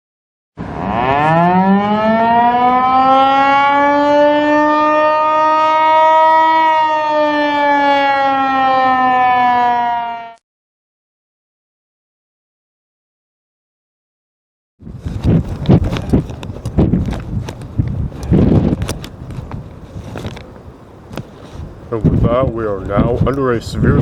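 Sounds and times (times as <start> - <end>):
warning siren wailing: 0.6 - 10.4.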